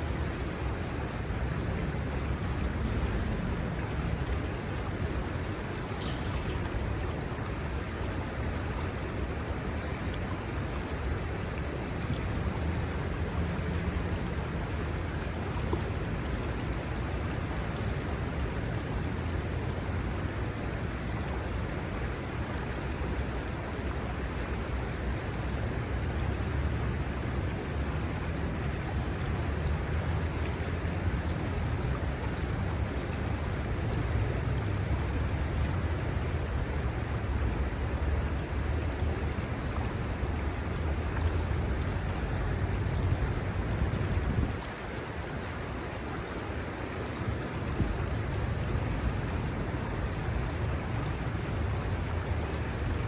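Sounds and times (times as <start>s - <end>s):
shallow river water flowing: 0.0s - 53.0s.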